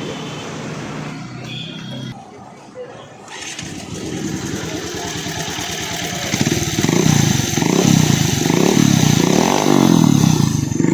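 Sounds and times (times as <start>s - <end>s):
motorcycle engine revving: 3.3s - 10.9s.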